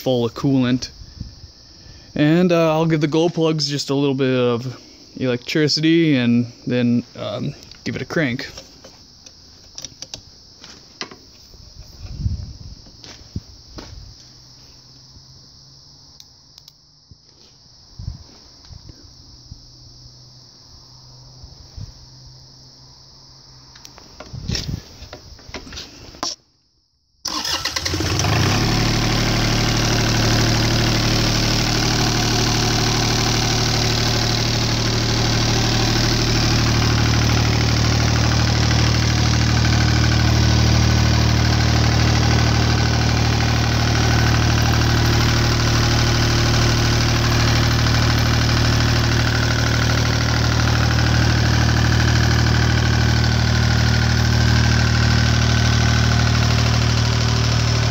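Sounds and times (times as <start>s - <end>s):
diesel engine starting and running: 27.3s - 57.9s.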